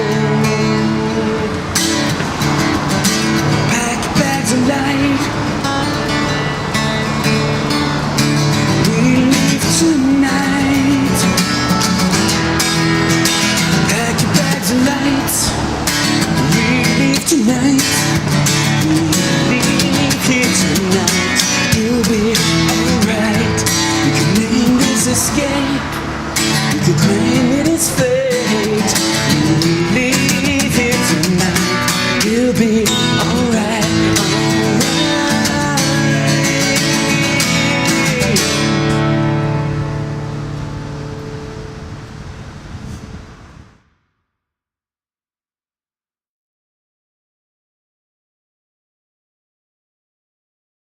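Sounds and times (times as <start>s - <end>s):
acoustic guitars strumming: 0.0s - 43.6s
person singing: 8.7s - 11.5s, 13.8s - 15.7s, 16.4s - 26.0s, 26.7s - 39.2s.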